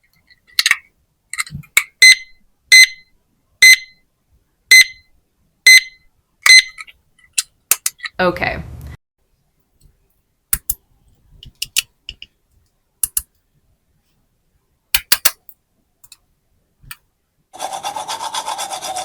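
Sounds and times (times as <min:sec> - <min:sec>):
plastic toy pieces clicking: 0:00.3 - 0:01.9, 0:06.8 - 0:08.2, 0:13.0 - 0:13.3, 0:15.0 - 0:16.2
pulsing rubbing or scraping: 0:17.6 - 0:19.0.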